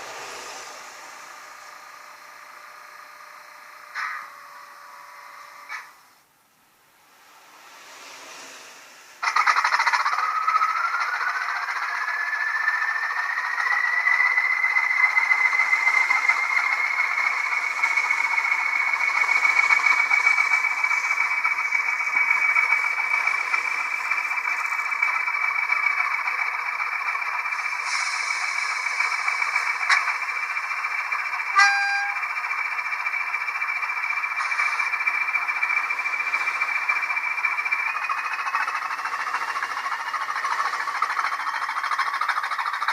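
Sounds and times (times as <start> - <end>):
model diesel engine through speaker: 0.0 - 42.9
turbocharger whistle rising: 9.4 - 32.5.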